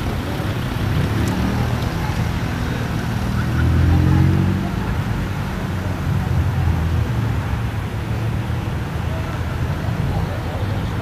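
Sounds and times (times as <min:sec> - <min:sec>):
car engine accelerating: 0:00.0 - 0:06.8.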